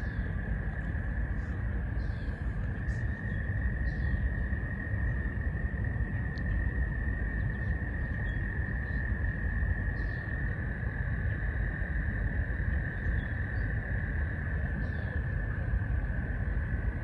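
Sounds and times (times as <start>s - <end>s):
frog chorus trilling: 0.0s - 17.0s.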